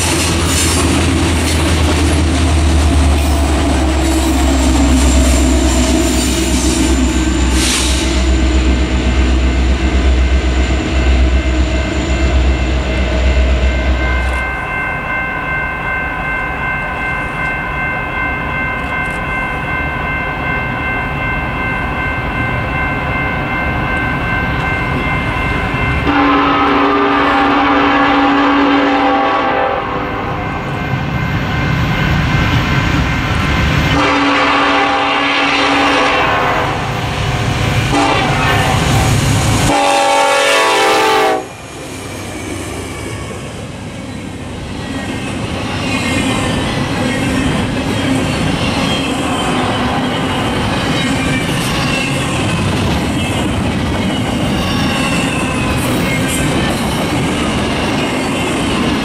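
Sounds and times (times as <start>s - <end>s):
train running by: 0.0s - 59.0s
locomotive air horn blasts: 26.1s - 30.4s, 33.9s - 36.9s, 37.9s - 39.1s, 39.7s - 41.6s.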